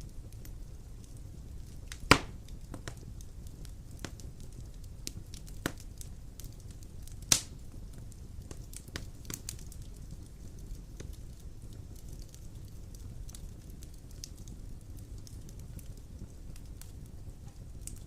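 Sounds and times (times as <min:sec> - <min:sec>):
logs burning with crackles: 0:00.0 - 0:18.0
loud sharp fire pops: 0:01.9 - 0:03.0, 0:05.0 - 0:07.7.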